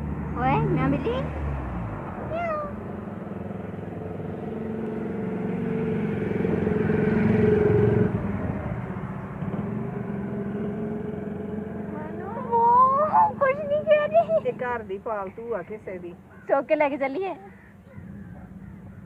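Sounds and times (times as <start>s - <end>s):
vehicle engine hum passing by: 0.0s - 16.4s.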